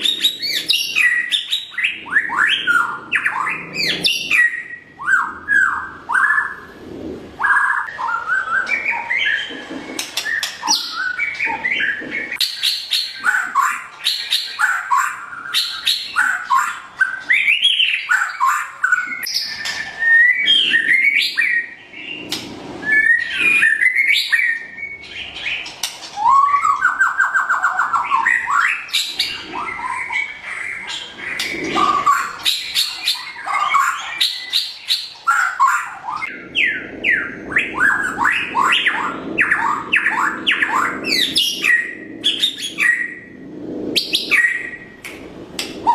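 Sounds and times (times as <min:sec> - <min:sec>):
songbird singing whistled phrases: 0:26.2 - 0:43.3.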